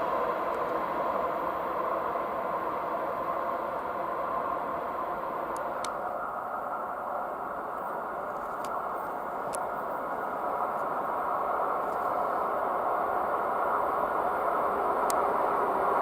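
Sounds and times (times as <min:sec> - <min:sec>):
train rushing rumble: 0:00.0 - 0:16.0
faint ticks: 0:07.8 - 0:10.9, 0:15.0 - 0:15.3.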